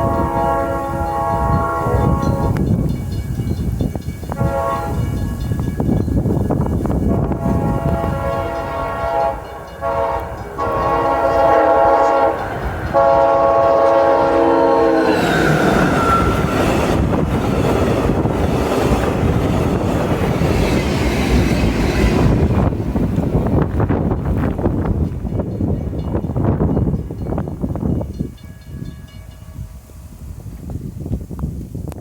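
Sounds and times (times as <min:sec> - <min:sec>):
train horn blasts: 0:00.0 - 0:02.9, 0:04.3 - 0:05.4, 0:07.0 - 0:17.3
train rumbling by: 0:00.0 - 0:31.2.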